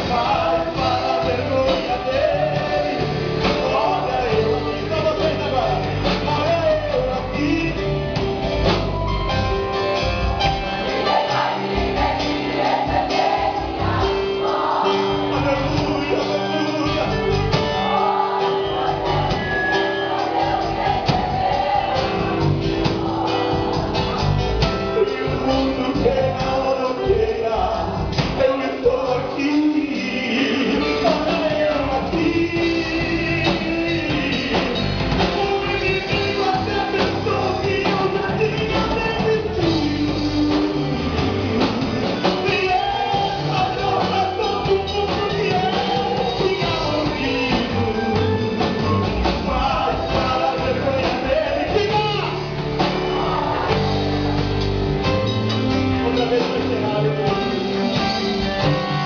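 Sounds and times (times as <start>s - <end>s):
rock band playing: 0.0s - 59.0s.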